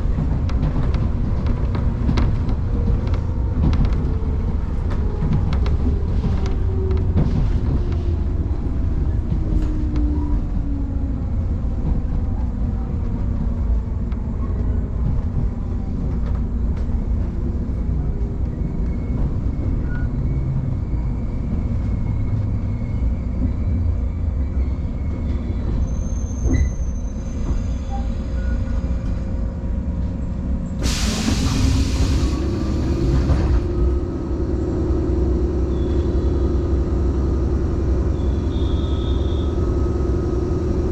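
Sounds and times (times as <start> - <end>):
steady train hum: 0.0 - 40.9
train running rumble: 0.0 - 40.9
compressed air hiss: 30.8 - 33.0
train motor whine: 30.8 - 40.9.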